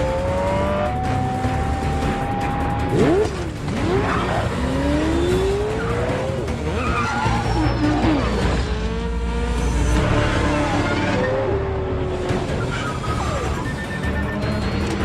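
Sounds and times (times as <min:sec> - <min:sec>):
vehicle engines running hard: 0:00.0 - 0:15.0
tyres squealing: 0:05.7 - 0:08.6.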